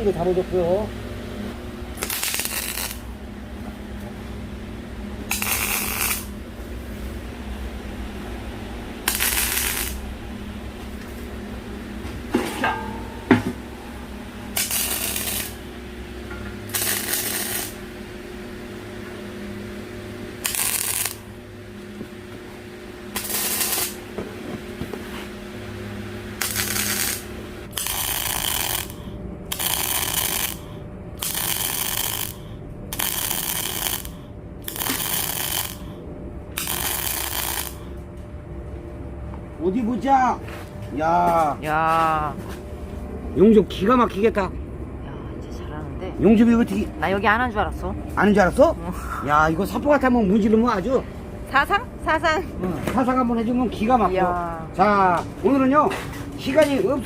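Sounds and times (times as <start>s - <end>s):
arc welding hissing: 1.9s - 3.2s, 5.2s - 6.4s, 9.0s - 10.2s, 14.4s - 16.0s, 16.6s - 18.6s, 20.2s - 21.4s, 23.1s - 24.2s, 26.3s - 36.0s, 36.6s - 38.0s.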